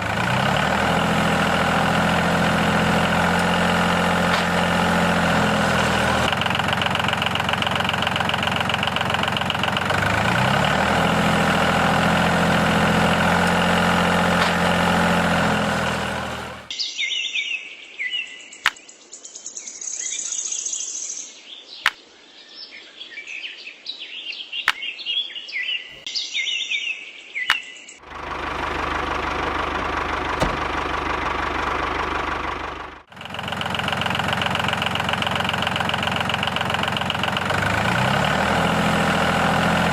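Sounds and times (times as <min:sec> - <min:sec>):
small engine running: 0:00.0 - 0:16.7, 0:28.0 - 0:39.9
bird chirps: 0:22.5 - 0:28.0.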